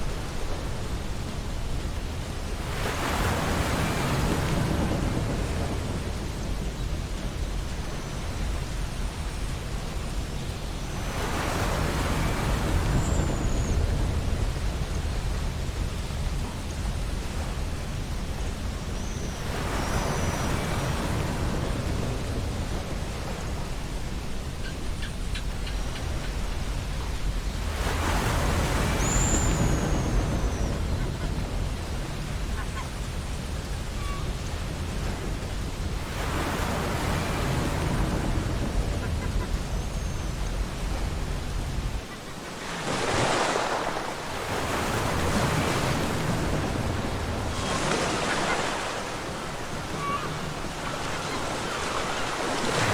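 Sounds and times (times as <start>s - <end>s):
ocean waves washing onto beach: 0.0s - 52.9s
high falling bird calls: 28.1s - 33.0s.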